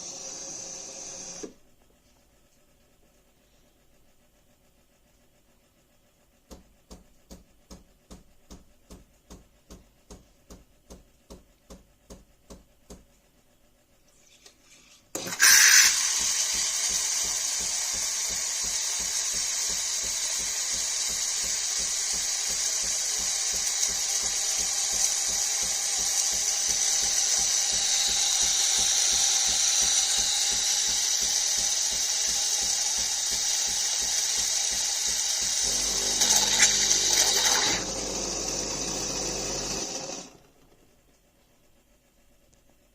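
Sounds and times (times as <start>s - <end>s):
motor whirring with hiss: 14.3s - 37.9s.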